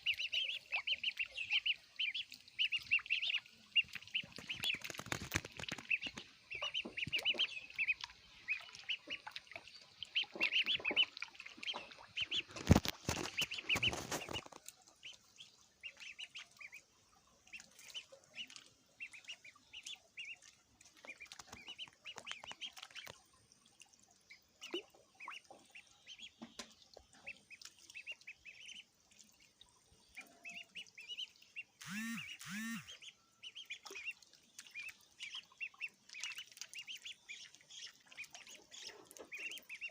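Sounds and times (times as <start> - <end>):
ducklings peeping: 0.0 - 16.8, 17.5 - 23.2, 24.3 - 28.8, 30.1 - 39.9
rustling noise: 12.5 - 14.7.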